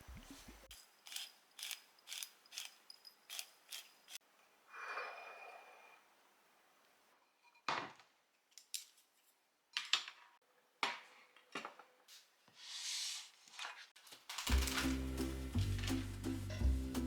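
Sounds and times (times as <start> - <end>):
short scrape or rustle: 12.6 - 13.5
utensils clinking on dishes: 14.4 - 16.8.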